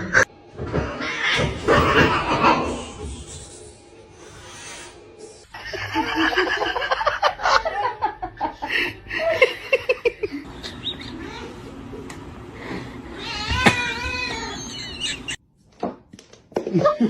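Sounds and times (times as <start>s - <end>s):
person laughing: 13.5s - 15.4s.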